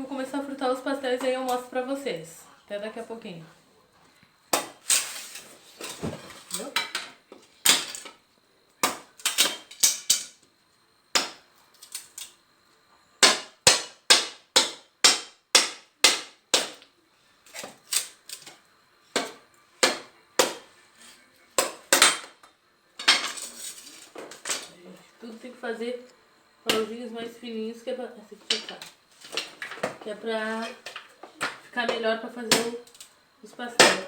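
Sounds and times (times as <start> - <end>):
firewood splitting cracks: 4.5 - 6.6, 8.8 - 10.4, 11.1 - 12.4, 13.2 - 16.9, 17.5 - 20.7, 21.6 - 22.4.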